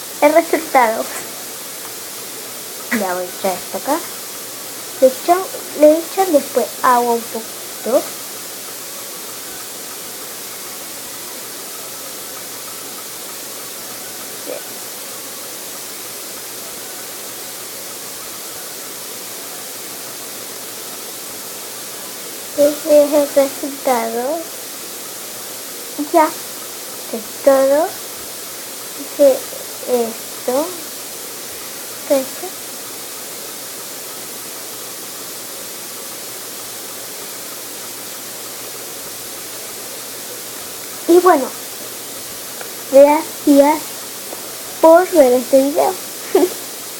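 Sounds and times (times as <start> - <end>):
steady hiss: 0.0 - 46.9.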